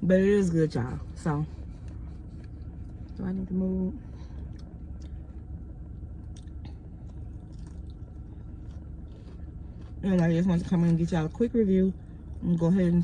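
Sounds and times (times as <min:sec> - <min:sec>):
steady low hum: 0:00.0 - 0:13.0
person chewing: 0:06.2 - 0:10.0.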